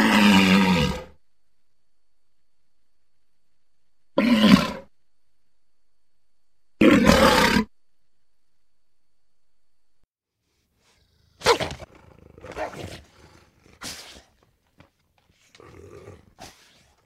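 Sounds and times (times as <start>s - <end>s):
animal barking or growling: 0.0s - 1.2s, 4.2s - 4.9s, 6.8s - 7.7s, 11.0s - 14.2s.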